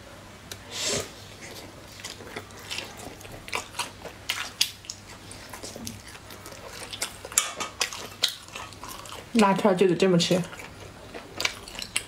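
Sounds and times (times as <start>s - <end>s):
person biting and chewing: 1.4s - 9.3s, 10.5s - 12.0s.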